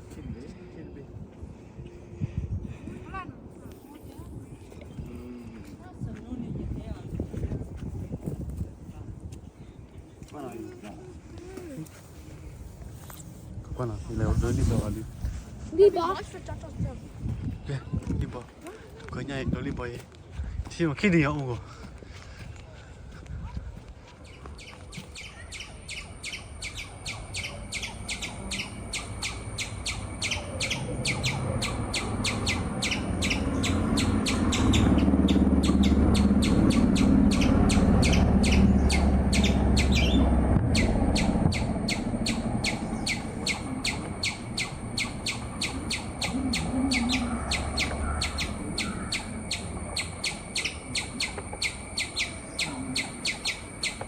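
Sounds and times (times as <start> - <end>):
high rapid chirps: 25.0 - 54.0
low rumble: 26.1 - 53.8.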